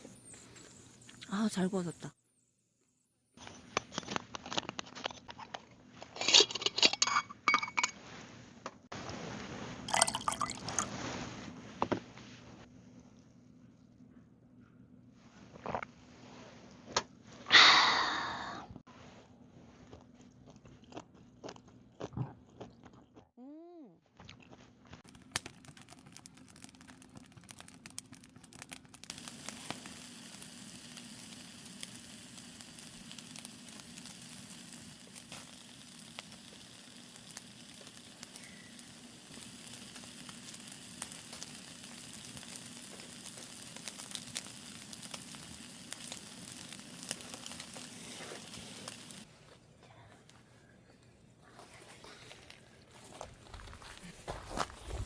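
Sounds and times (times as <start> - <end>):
food sizzling on a grill: 25.1 - 49.3.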